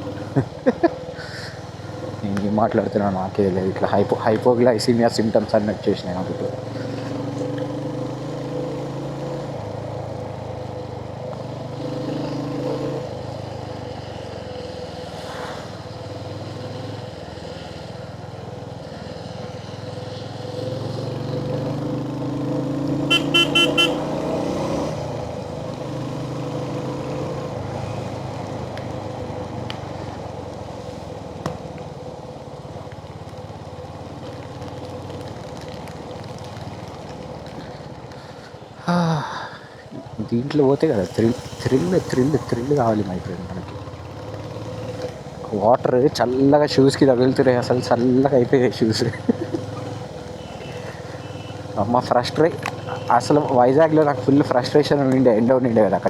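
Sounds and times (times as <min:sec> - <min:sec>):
motorcycle engine running: 0:18.2 - 0:38.2, 0:40.1 - 0:45.7
horn beeps: 0:23.1 - 0:24.2.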